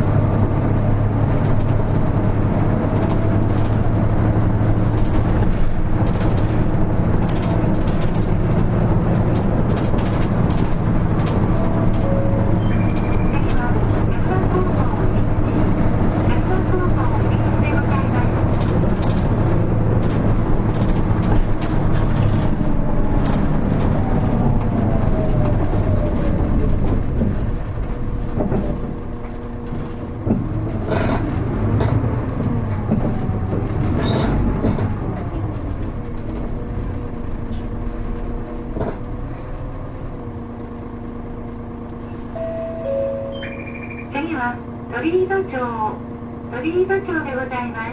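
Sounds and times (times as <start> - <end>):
bus diesel engine running: 0.0 - 47.9
falling whine: 42.3 - 44.6.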